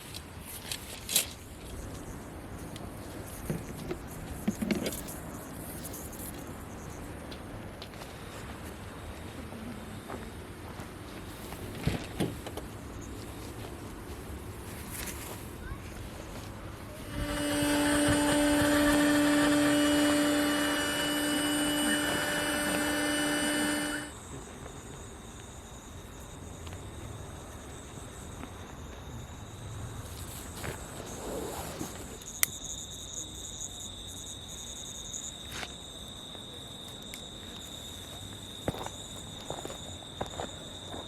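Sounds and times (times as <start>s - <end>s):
insects chirring: 0.0s - 41.0s
motor humming: 17.0s - 24.2s.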